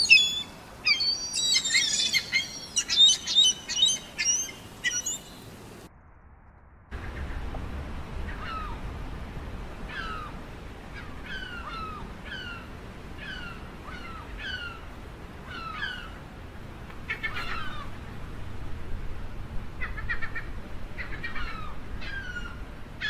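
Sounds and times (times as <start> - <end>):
gull mewing cries: 0.0 - 5.3.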